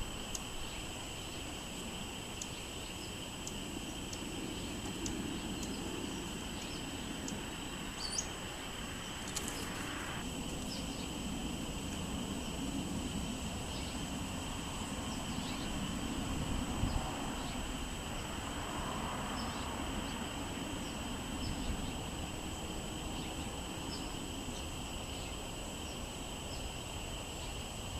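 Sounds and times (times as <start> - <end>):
songbird chirps: 0.0 - 11.2
wind on microphone: 10.8 - 22.1.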